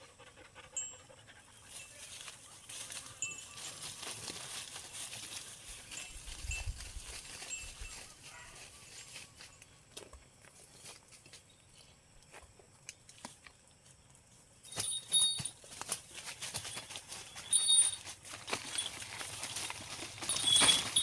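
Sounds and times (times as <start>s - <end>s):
dog panting: 0.0s - 1.7s
rustling: 1.7s - 9.6s, 14.7s - 21.0s.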